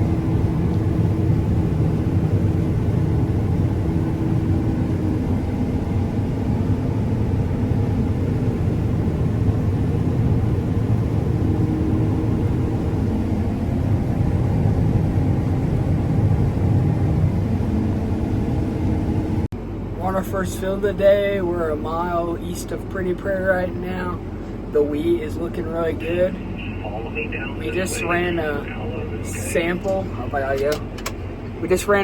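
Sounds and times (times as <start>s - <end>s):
vehicle engine running: 24.0s - 32.0s.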